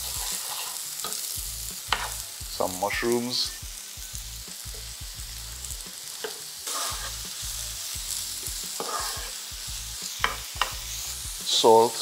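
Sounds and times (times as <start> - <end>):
wooden spatula scraping a pan: 0.0 - 1.2, 6.2 - 7.4, 8.7 - 9.4
vegetables sizzling in a pan: 0.0 - 12.0.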